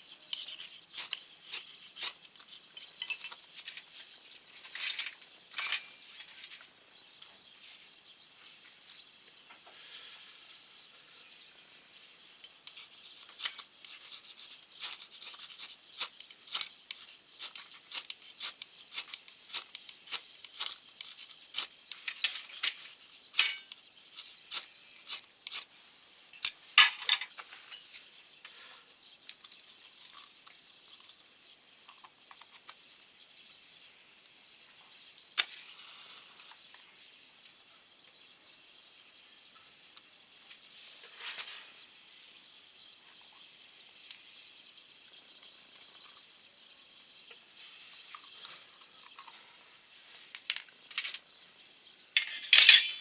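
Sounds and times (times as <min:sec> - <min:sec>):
clicks and scrapes on metal stove: 0:52.2 - 0:53.0.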